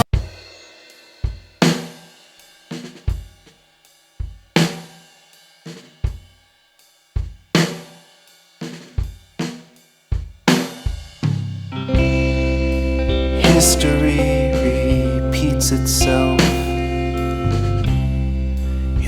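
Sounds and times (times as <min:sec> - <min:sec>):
drum kit hits: 0:11.2 - 0:18.4
full band playing: 0:11.7 - 0:19.0
faint held instrument notes: 0:11.8 - 0:19.0
low bass note: 0:11.8 - 0:19.0.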